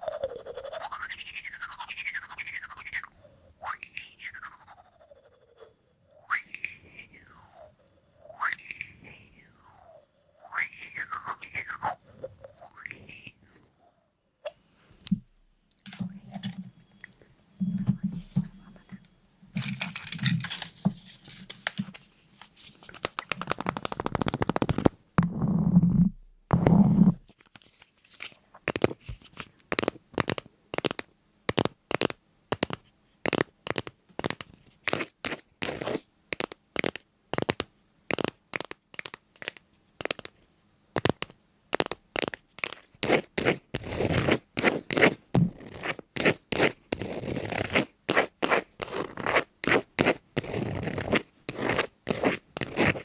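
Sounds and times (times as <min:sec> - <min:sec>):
crunching scratching clicks: 0:22.8 - 0:25.0, 0:27.5 - 0:40.4, 0:41.0 - 0:53.0.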